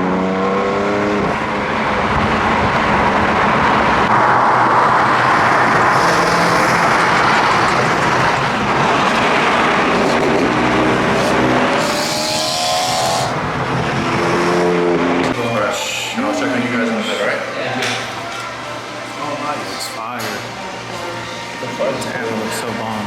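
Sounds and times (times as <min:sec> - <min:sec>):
car engine and exhaust: 0:00.0 - 0:15.4
road and wind noise: 0:00.0 - 0:15.5.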